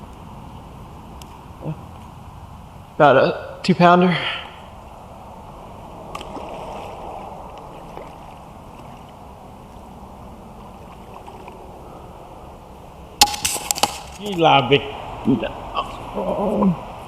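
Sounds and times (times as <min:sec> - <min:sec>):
flowing river water: 0:04.4 - 0:17.0.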